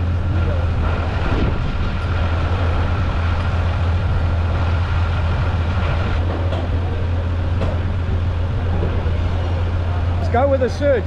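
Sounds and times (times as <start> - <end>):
large engine humming: 0.0 - 11.0.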